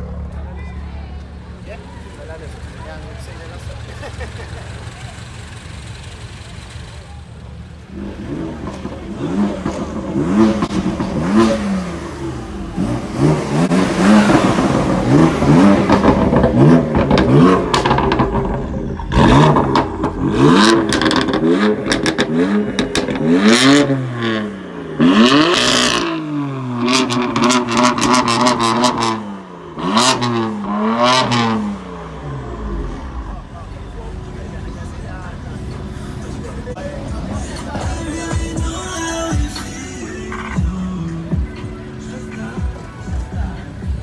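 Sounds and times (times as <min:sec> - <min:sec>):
car engine revving: 0:01.5 - 0:44.0
exhaust crackles and pops: 0:13.4 - 0:23.3.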